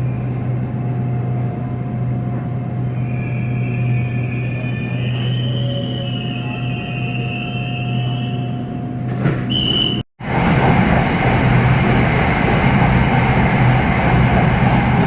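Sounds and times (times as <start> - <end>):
electric train running hum: 0.0 - 15.0.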